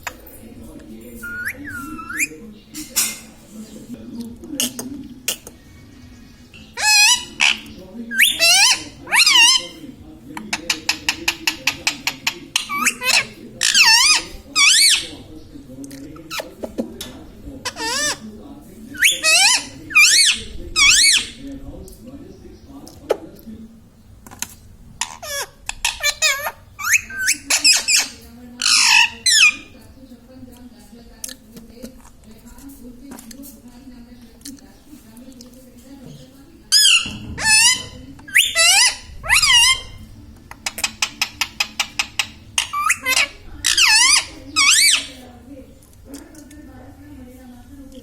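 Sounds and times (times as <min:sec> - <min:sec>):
parrot warbling calls: 0:01.2 - 0:02.3, 0:06.7 - 0:09.8, 0:10.6 - 0:15.1, 0:17.6 - 0:18.2, 0:19.0 - 0:21.4, 0:25.0 - 0:29.7, 0:36.7 - 0:40.0, 0:40.6 - 0:45.2
parakeet chattering and whistling: 0:01.2 - 0:02.4, 0:06.4 - 0:09.8, 0:10.5 - 0:15.2, 0:17.6 - 0:18.2, 0:19.0 - 0:21.4, 0:25.0 - 0:29.8, 0:36.7 - 0:45.2
parakeet harsh squawk: 0:06.7 - 0:09.8, 0:10.7 - 0:15.1, 0:17.6 - 0:18.2, 0:19.0 - 0:21.4, 0:25.0 - 0:29.7, 0:36.7 - 0:40.0, 0:40.6 - 0:45.2
parrot clicking chirps: 0:40.6 - 0:43.2.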